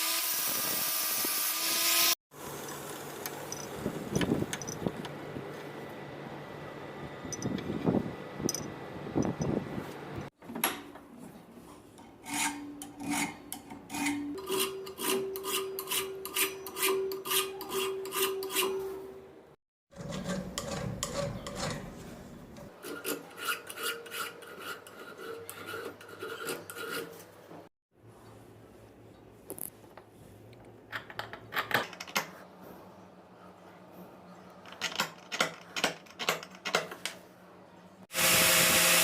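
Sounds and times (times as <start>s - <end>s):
file rasping on steel: 12.1s - 19.0s, 22.7s - 27.4s.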